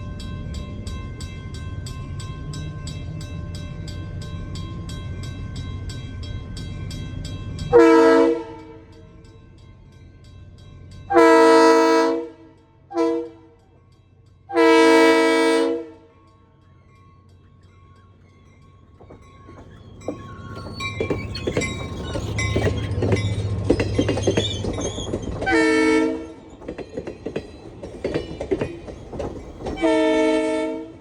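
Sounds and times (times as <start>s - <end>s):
crossing bell ringing: 0.0s - 31.0s
locomotive air horn blasts: 7.7s - 8.8s, 11.1s - 13.5s, 14.5s - 16.1s, 25.5s - 26.5s, 29.8s - 31.0s.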